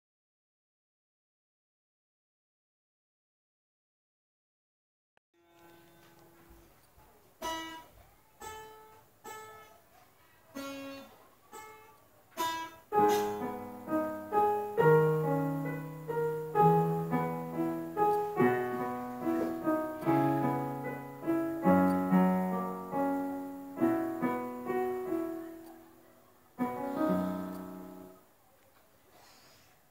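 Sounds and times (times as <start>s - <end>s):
slow gentle piano melody: 12.4s - 28.3s.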